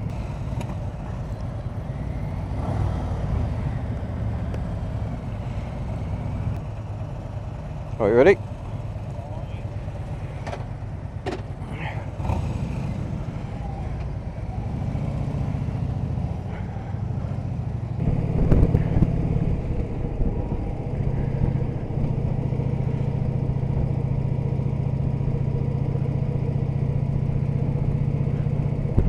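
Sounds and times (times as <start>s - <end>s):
motorcycle engine running: 0.0s - 29.0s
road and wind noise: 0.0s - 29.0s.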